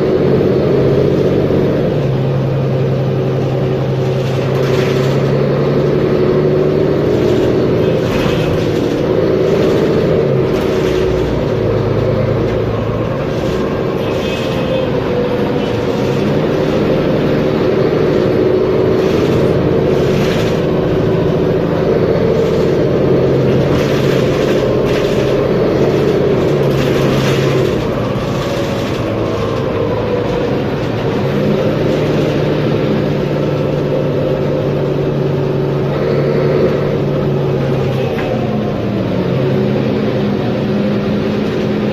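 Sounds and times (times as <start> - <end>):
bus diesel engine running: 0.0 - 41.9.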